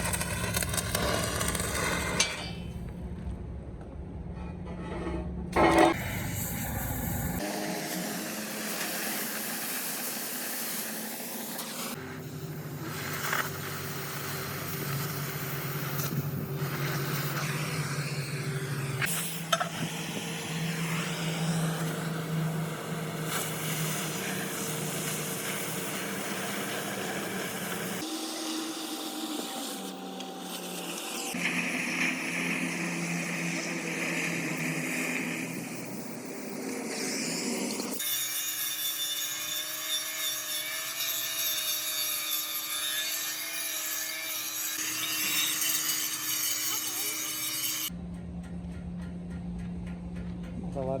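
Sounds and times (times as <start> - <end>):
low machine hum: 47.9 - 51.0.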